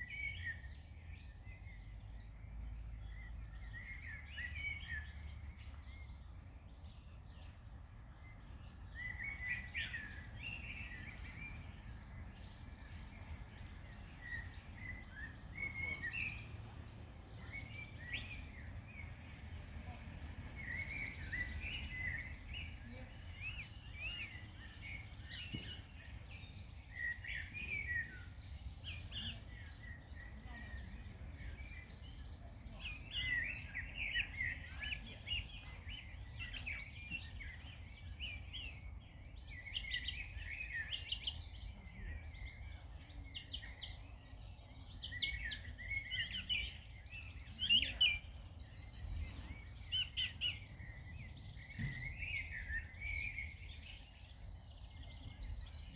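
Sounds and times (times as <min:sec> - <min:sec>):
songbirds chirping and singing: 0:00.0 - 0:55.9.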